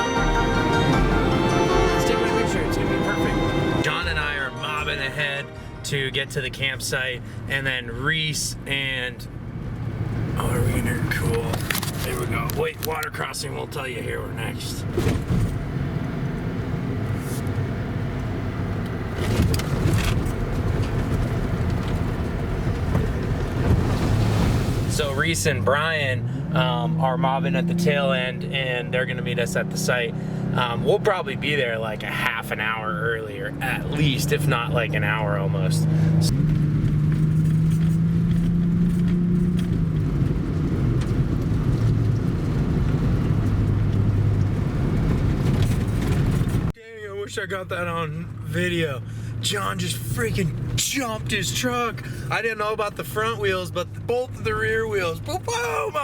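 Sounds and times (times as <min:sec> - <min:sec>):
engine drone: 0:00.0 - 0:07.4
engine and drivetrain rumble: 0:00.0 - 0:56.0.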